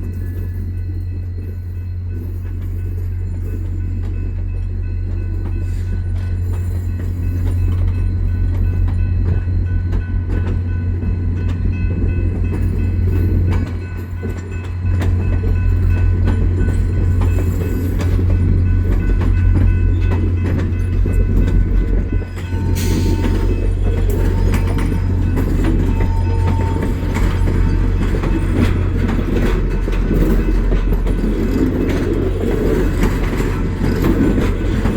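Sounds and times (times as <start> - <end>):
diesel locomotive droning: 0.0 - 34.9
train wheels clicking over rail joints: 0.0 - 34.9
high steady tone: 0.8 - 31.2.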